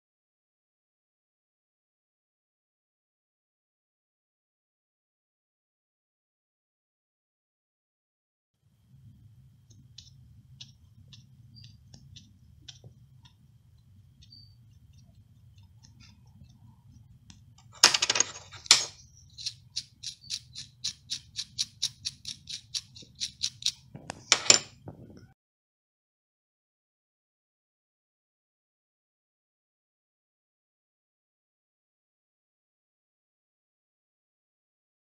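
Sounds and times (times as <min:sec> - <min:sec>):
low steady hum: 0:08.6 - 0:25.3
evenly spaced clicks: 0:19.3 - 0:23.8.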